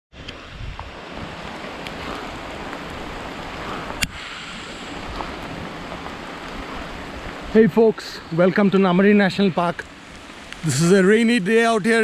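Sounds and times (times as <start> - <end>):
wind on microphone: 0.1 - 7.6
heavy rain hissing: 0.9 - 12.0.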